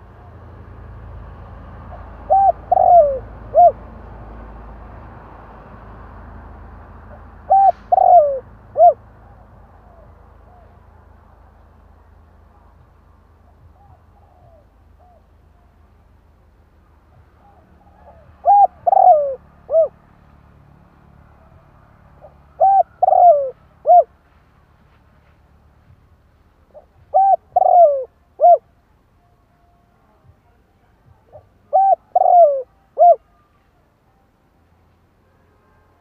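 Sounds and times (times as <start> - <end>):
dove cooing: 1.9 - 3.8, 7.4 - 10.8, 13.7 - 15.3, 17.4 - 20.0, 22.2 - 24.1, 26.7 - 28.6, 31.2 - 33.3.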